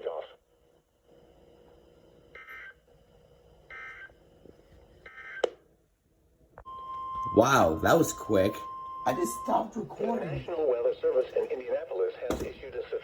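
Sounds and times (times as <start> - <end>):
digital data tone bursts: 6.7 - 10.4.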